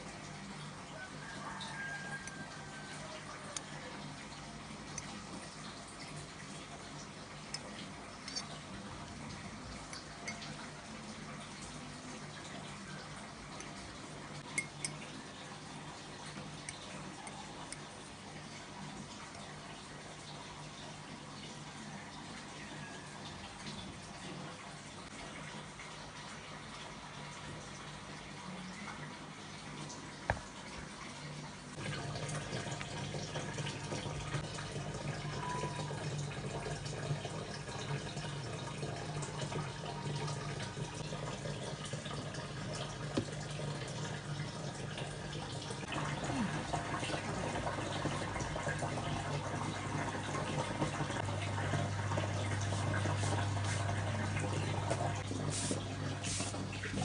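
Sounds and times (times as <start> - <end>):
tap water splashing into sink: 29.8 - 30.9, 31.8 - 57.0.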